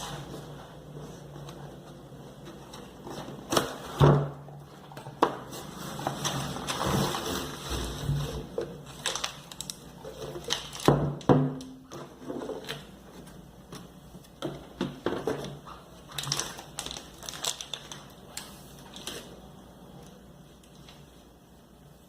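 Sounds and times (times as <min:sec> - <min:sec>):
packaging crinkling and rustling: 0:04.6 - 0:14.4, 0:15.0 - 0:21.2.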